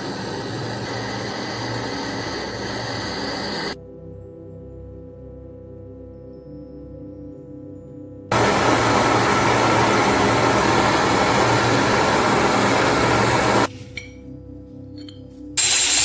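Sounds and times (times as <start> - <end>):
rushing hiss of air tool: 0.0 - 3.8, 8.3 - 13.7, 15.6 - 16.0
soft ambient music: 0.1 - 9.0, 13.7 - 15.6.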